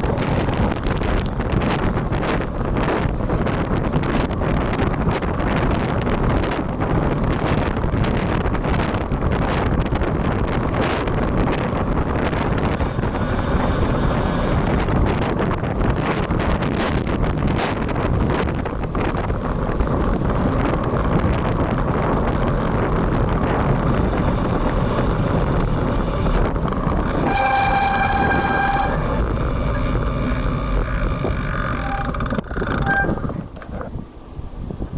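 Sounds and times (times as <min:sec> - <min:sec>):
tyre noise: 0:00.0 - 0:34.0
traffic noise: 0:00.0 - 0:34.9
wind buffeting microphone: 0:00.0 - 0:34.9
steady horn tone: 0:12.2 - 0:15.2, 0:22.1 - 0:33.3.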